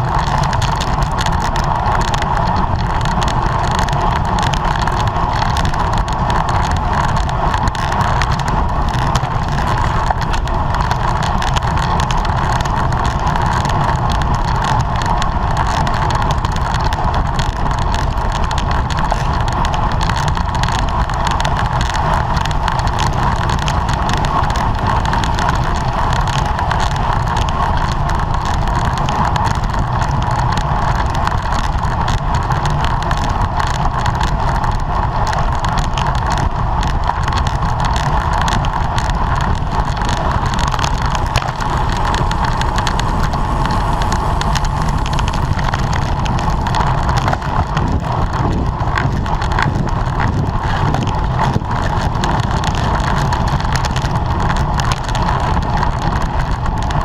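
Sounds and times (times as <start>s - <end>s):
road noise rumble: 0.0s - 57.0s
wind rushing: 37.9s - 51.8s.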